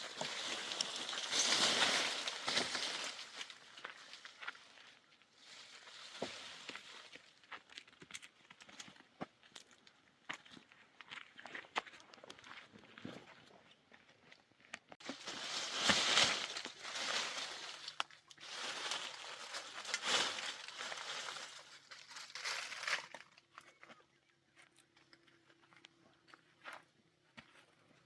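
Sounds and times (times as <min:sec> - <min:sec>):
rustling and crinkling: 0:00.0 - 0:09.6, 0:14.7 - 0:24.0.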